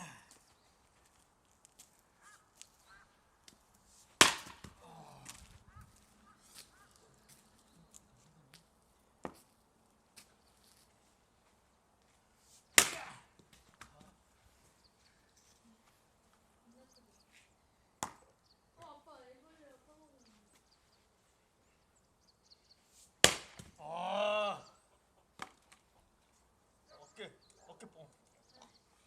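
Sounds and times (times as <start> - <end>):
axe chopping firewood: 4.2 - 5.5, 12.7 - 14.0, 23.2 - 23.8.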